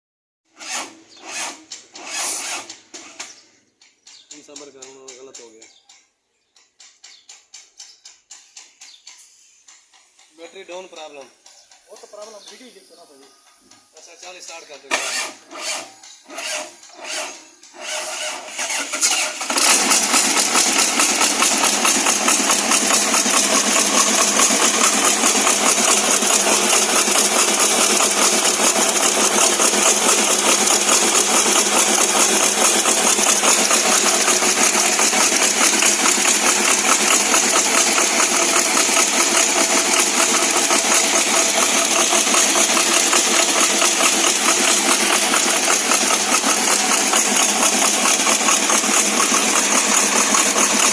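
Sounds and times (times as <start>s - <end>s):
generator engine cranking and running: 0.5s - 5.6s, 9.6s - 50.9s.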